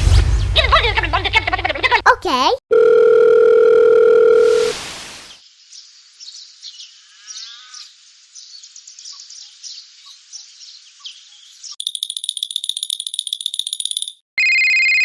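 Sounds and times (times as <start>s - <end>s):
loud electronic beep: 4.4s - 5.4s
short hiss of noise: 4.4s - 5.4s.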